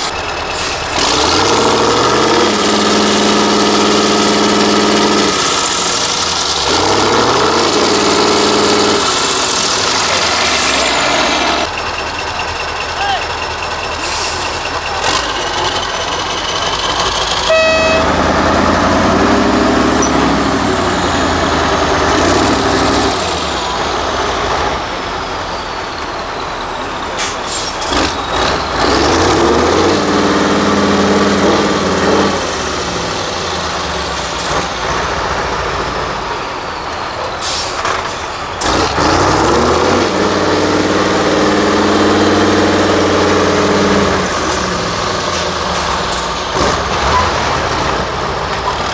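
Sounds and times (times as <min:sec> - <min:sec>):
truck diesel engine revving: 0:00.0 - 0:48.9
air hissing: 0:37.4 - 0:38.7.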